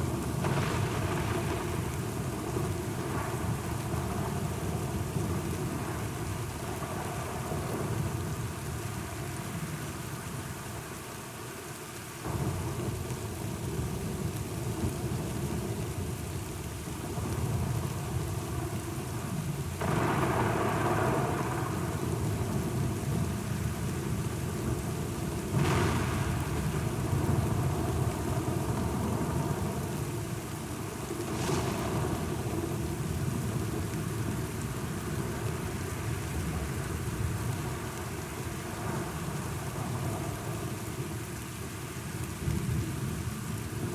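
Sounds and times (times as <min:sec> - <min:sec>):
low rumble of thunder: 0:00.0 - 0:09.7, 0:12.2 - 0:41.4
steady rain: 0:00.0 - 0:43.9
sharp thunderclaps: 0:25.4 - 0:29.6, 0:31.2 - 0:33.8.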